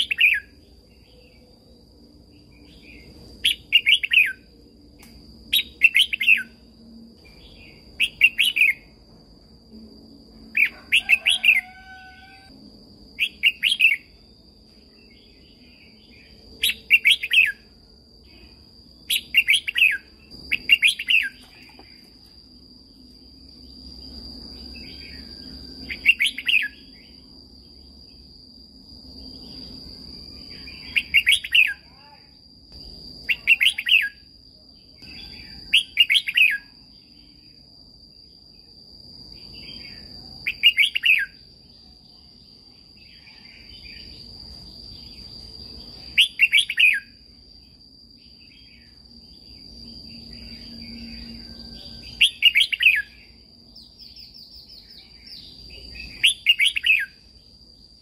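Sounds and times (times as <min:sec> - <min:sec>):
high-pitched insect trill: 0:00.0 - 0:58.0
bird singing warbling phrases: 0:02.6 - 0:04.4, 0:19.1 - 0:22.0, 0:30.5 - 0:32.3, 0:33.3 - 0:34.2, 0:35.2 - 0:36.7, 0:39.7 - 0:41.4, 0:53.8 - 0:57.2.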